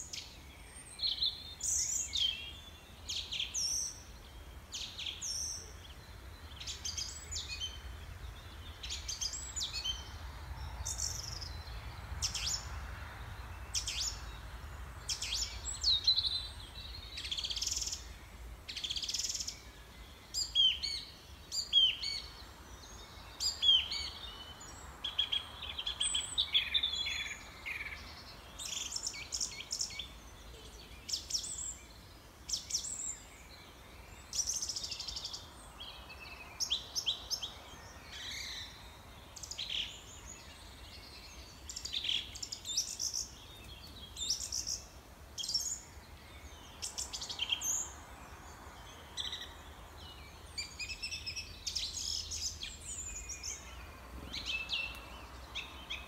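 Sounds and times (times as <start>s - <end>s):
small birds chirping and singing: 0.0s - 56.0s.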